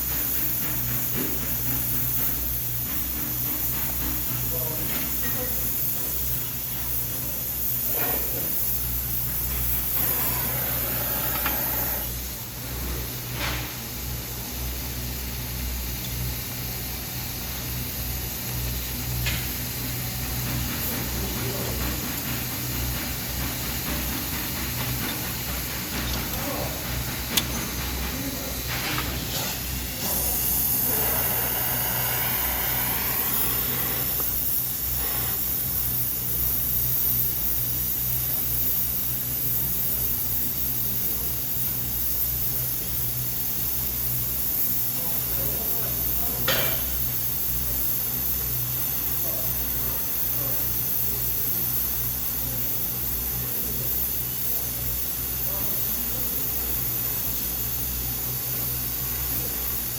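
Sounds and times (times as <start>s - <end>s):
steady hiss: 0.0s - 59.9s.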